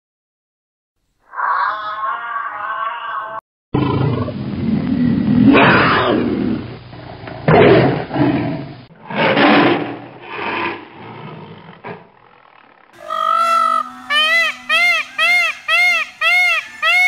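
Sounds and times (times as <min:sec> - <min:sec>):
tiger roaring and growling: 0:01.3 - 0:06.7, 0:07.4 - 0:14.7.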